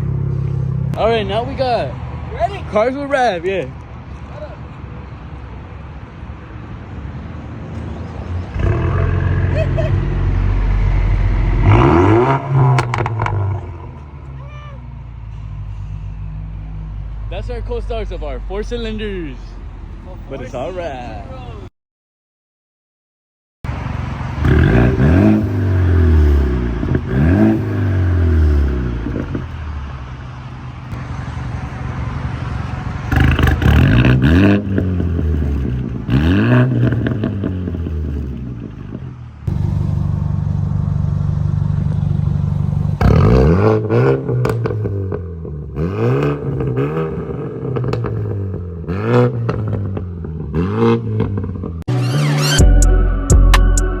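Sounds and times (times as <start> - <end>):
car engine revving: 7.7 - 15.2, 15.8 - 21.7, 23.7 - 52.9.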